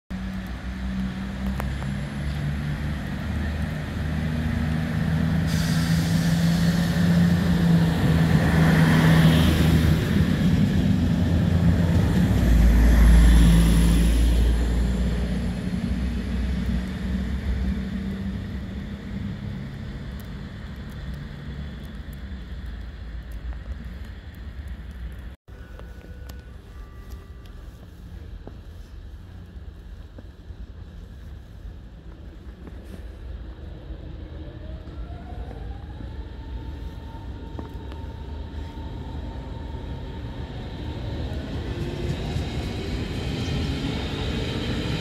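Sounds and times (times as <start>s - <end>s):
passenger train passing: 0.2s - 45.0s.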